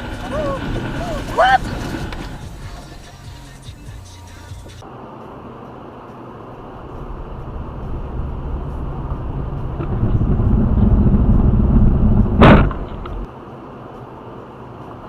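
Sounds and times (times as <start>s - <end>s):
low vehicle rumble: 0.0s - 4.8s, 6.1s - 13.3s.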